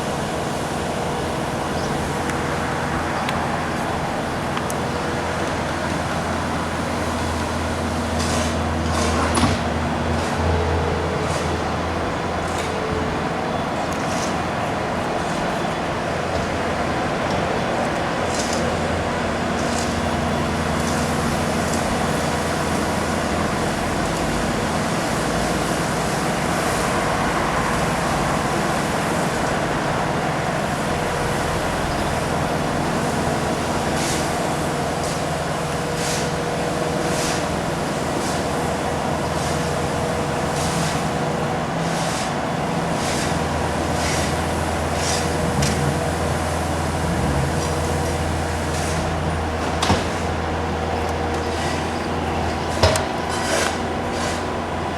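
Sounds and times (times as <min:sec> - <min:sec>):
diesel engine running: 0:00.0 - 0:54.9
sharp clicks and scrapes: 0:52.9 - 0:54.4.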